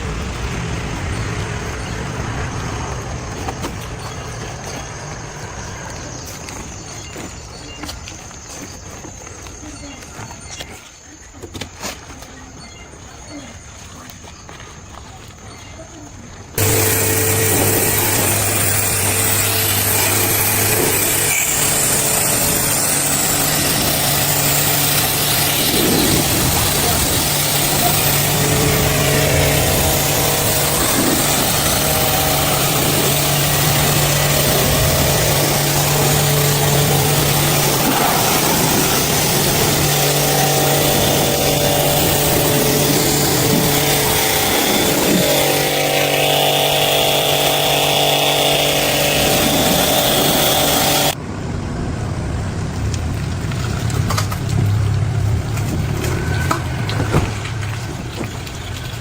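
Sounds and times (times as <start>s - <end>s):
concrete mixer running: 16.6s - 51.2s.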